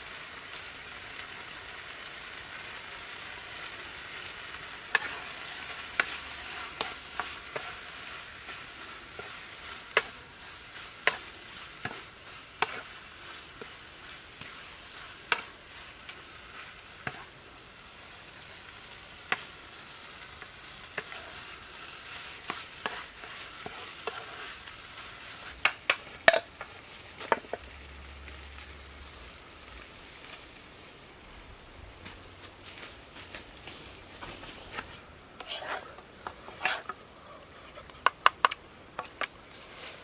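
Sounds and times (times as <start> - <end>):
food sizzling in a pan: 0.0 - 40.0
utensil scraping a pan: 4.9 - 17.4, 19.2 - 29.2, 34.2 - 38.1.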